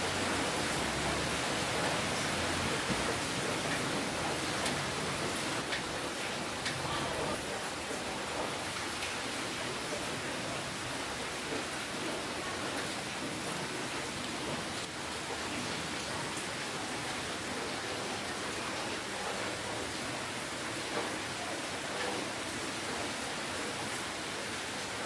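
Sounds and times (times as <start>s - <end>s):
steady rainfall: 0.0s - 25.0s
raindrop ticks: 0.7s - 10.1s.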